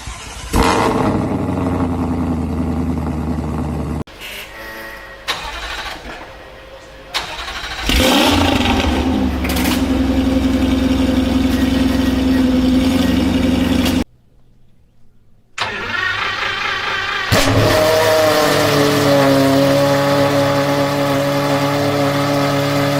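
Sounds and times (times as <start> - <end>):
car engine high idle: 0.0 - 4.0, 5.4 - 14.0
sports car engines starting: 0.0 - 4.2, 5.2 - 14.1, 15.6 - 22.9.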